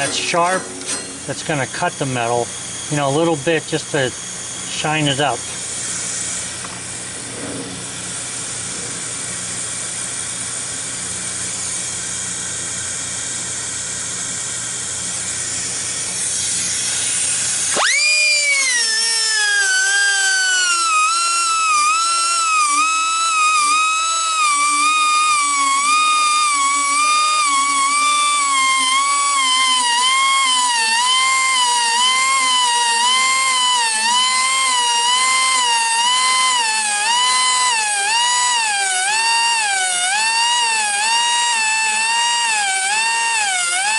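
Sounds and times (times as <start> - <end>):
grinder sharpening steel blade: 0.0 - 1.6.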